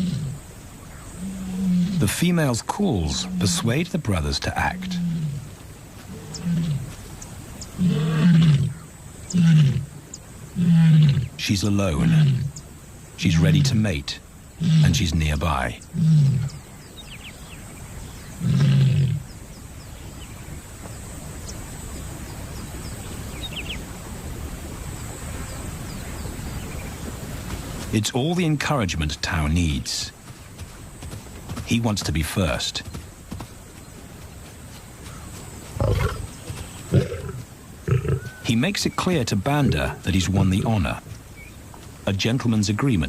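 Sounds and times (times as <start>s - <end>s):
small birds chirping faintly: 0.0s - 43.0s
lioness roaring: 4.6s - 5.5s, 7.8s - 9.9s, 18.4s - 19.2s, 35.8s - 36.3s, 36.9s - 38.4s.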